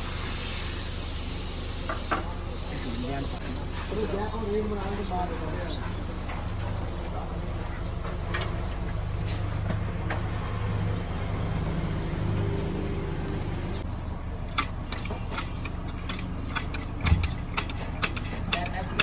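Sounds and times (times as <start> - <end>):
sharp clicks and taps: 14.5 - 19.0.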